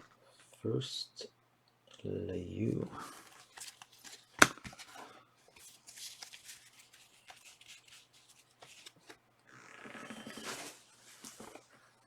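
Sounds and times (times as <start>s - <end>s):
cards and wrappers rustling: 2.9s - 9.2s.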